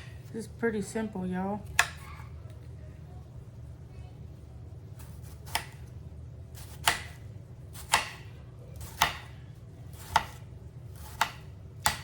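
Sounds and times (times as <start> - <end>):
knife chopping on cutting board: 0.0 - 0.3, 1.6 - 2.1, 5.0 - 5.9, 6.6 - 7.2, 7.8 - 12.0
steady low hum: 0.0 - 12.0.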